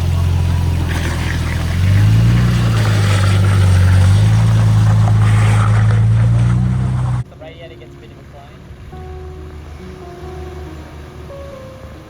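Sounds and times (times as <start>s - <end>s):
vehicle engine running: 0.0s - 8.9s
road noise hiss: 0.0s - 12.0s.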